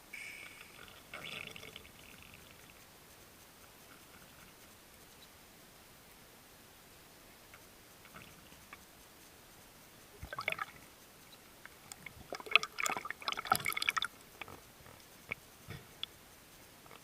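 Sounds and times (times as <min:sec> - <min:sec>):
underwater bubbling and clicking: 0:00.6 - 0:05.2, 0:07.5 - 0:09.0, 0:10.1 - 0:16.2.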